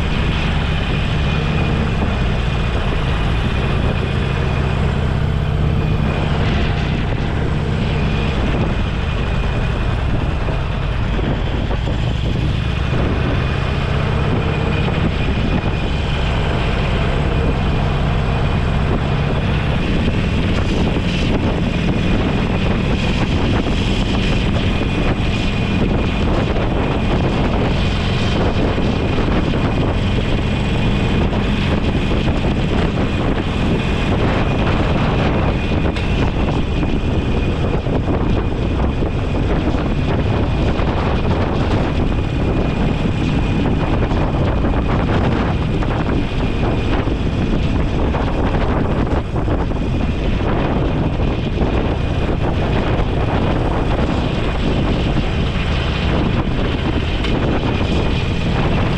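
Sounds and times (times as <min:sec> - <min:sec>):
motorcycle engine running: 0:00.0 - 0:58.9
wind buffeting microphone: 0:00.0 - 0:58.9.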